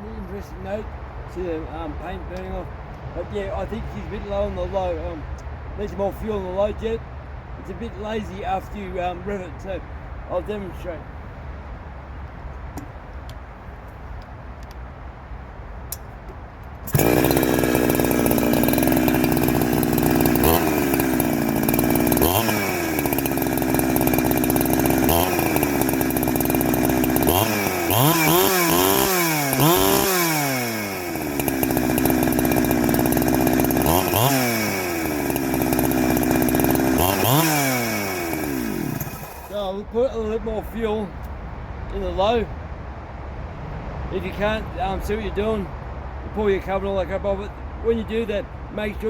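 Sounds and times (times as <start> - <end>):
chainsaw idling and revving: 16.8 - 39.6.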